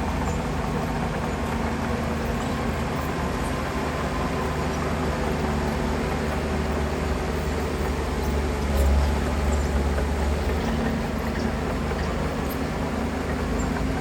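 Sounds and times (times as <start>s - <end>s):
heavy diesel engine under load: 0.0s - 14.0s.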